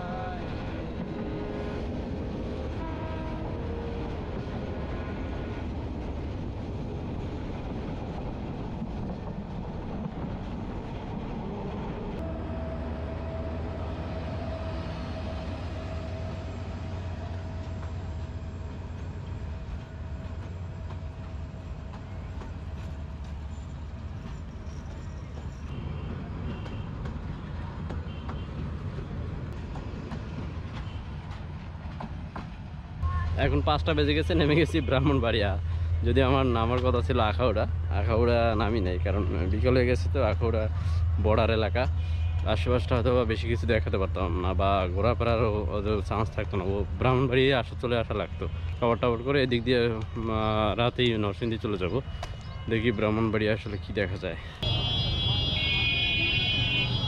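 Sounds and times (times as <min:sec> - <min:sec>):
train running: 0:00.0 - 0:52.5, 0:54.4 - 0:57.0
diesel locomotive engine drone: 0:00.0 - 0:57.0
long held horn tone: 0:02.5 - 0:04.4, 0:12.2 - 0:17.4, 0:54.6 - 0:57.0.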